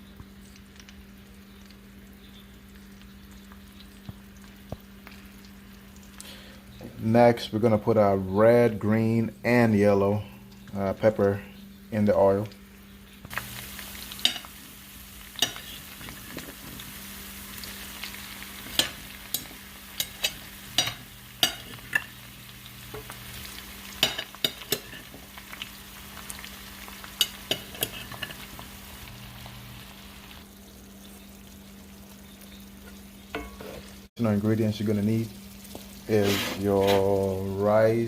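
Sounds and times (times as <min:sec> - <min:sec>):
vegetables sizzling in oil: 0:11.7 - 0:38.0
utensil scraping a pan: 0:24.0 - 0:25.2, 0:27.2 - 0:28.4, 0:36.1 - 0:37.2.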